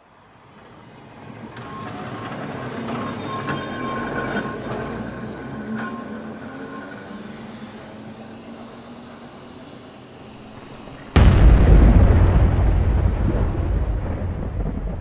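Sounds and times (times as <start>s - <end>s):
mechanical rumble: 10.3s - 15.0s.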